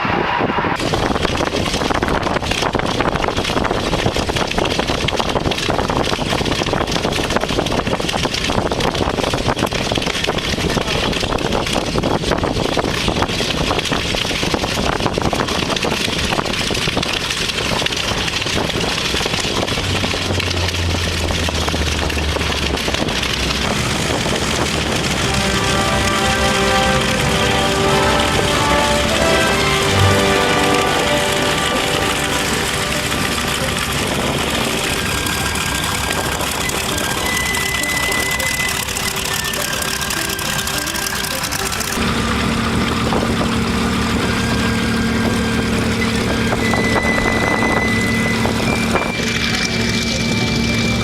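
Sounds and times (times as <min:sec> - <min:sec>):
dense rushing noise: 0:00.0 - 0:51.0
piston aircraft engine running: 0:00.0 - 0:51.0
low steady hum: 0:12.4 - 0:51.0.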